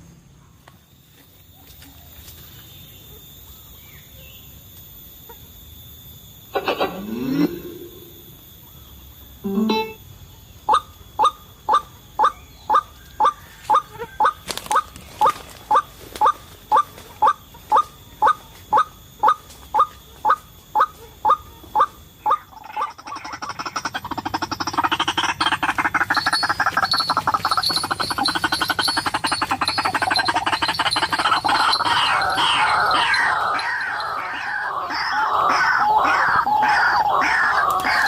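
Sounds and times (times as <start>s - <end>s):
bird harsh calling: 10.7s - 38.0s.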